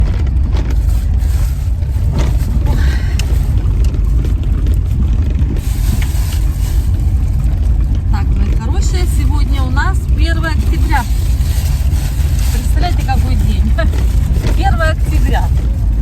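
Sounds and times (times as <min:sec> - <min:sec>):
car cabin road rumble: 0:00.0 - 0:16.0.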